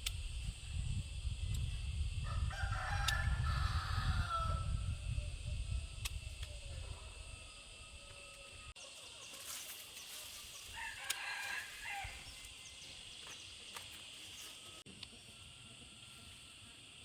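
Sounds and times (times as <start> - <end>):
rooster crowing: 2.2 - 5.0, 10.7 - 12.4.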